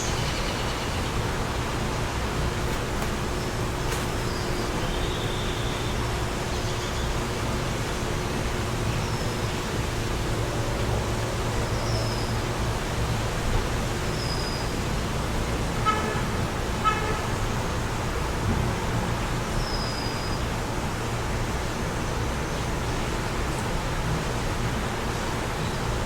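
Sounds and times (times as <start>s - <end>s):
road traffic noise: 0.0s - 26.0s
wind: 0.0s - 26.0s
birds chirping: 2.5s - 7.1s
car horn tooting: 15.8s - 17.4s.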